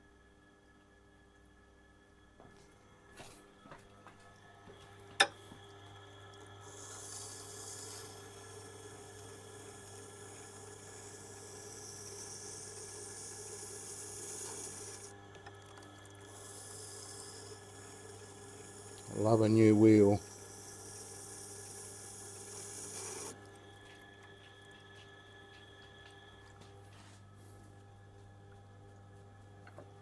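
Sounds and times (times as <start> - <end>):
grinder motor humming: 5.5 - 24.8.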